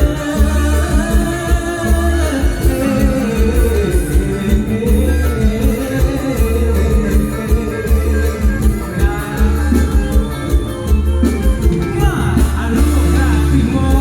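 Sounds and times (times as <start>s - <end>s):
live band music with heavy bass: 0.0s - 14.0s.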